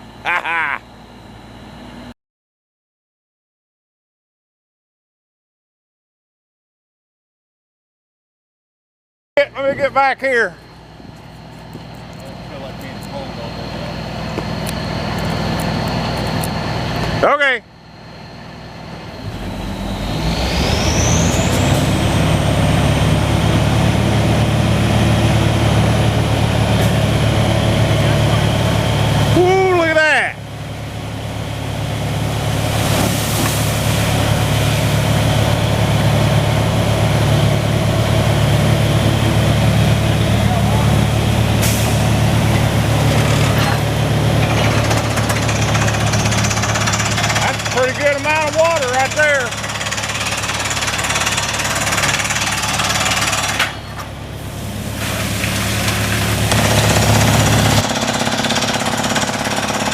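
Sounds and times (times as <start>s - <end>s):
high rising whine: 9.4s - 54.9s
drilling rig engine: 9.4s - 59.9s
rapid drill hammering: 44.8s - 53.8s, 56.5s - 59.9s.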